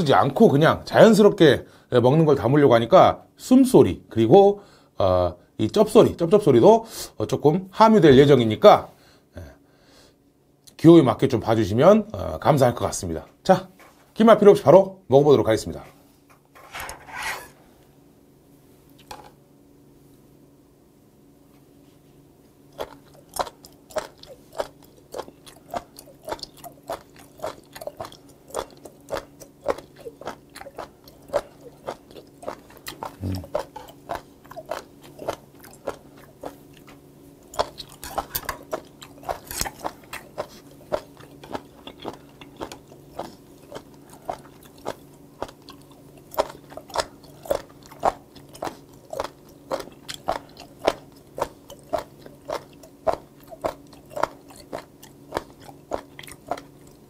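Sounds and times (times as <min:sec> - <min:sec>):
crunchy chewing close up: 0:22.7 - 0:57.0.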